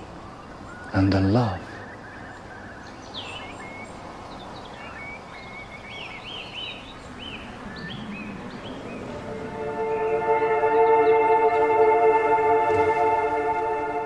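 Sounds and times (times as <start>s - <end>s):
small birds chirping: 0.0s - 14.0s
steady outdoor hiss: 0.0s - 14.0s
sustained music: 7.4s - 14.0s.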